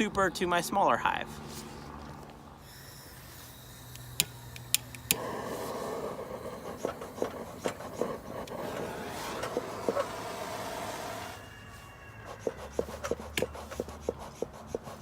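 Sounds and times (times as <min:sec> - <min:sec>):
honeybee colony humming: 0:03.7 - 0:15.0
boxes and frames scraping: 0:05.2 - 0:11.4.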